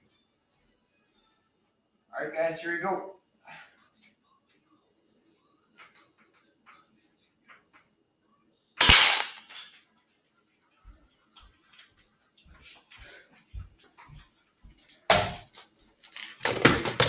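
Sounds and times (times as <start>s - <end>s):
airsoft rifle shot crack: 8.8s - 9.5s, 15.1s - 15.5s.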